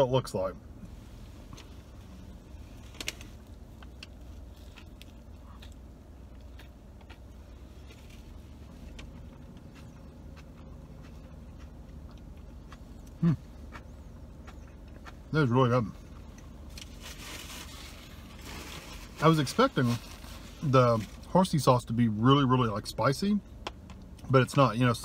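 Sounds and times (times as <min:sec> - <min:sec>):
man chewing: 0:02.8 - 0:15.4
man humming mm: 0:13.2 - 0:13.5.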